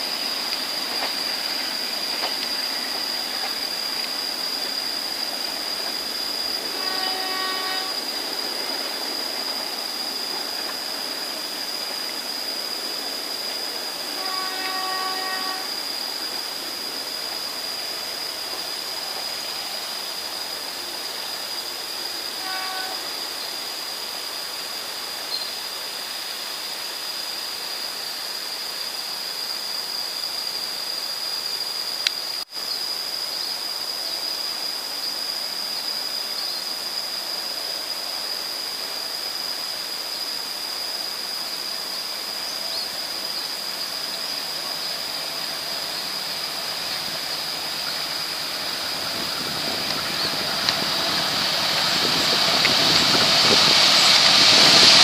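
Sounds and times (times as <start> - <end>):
distant train hiss: 0.0 - 55.0
train horn: 6.6 - 8.5, 13.9 - 16.0, 22.2 - 23.3, 46.6 - 55.0
high thin whine: 44.6 - 55.0.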